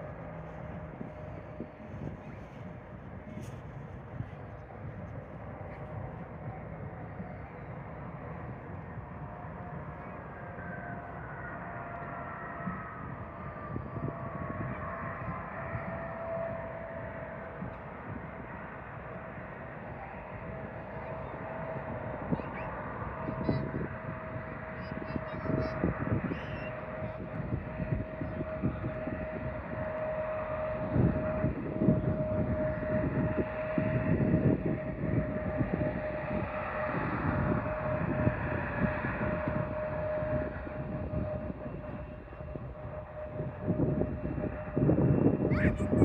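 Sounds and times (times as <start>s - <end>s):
airliner engines running: 0.0s - 46.0s.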